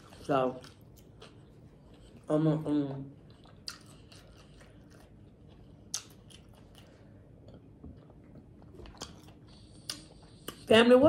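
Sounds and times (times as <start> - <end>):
close chewing of salad: 0.0 - 10.7.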